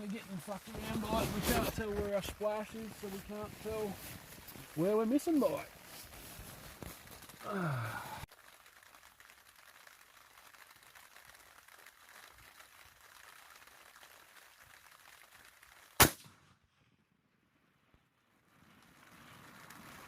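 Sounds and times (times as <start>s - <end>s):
rain and wind hiss: 0.0s - 9.3s
loud rifle shot: 16.0s - 16.5s.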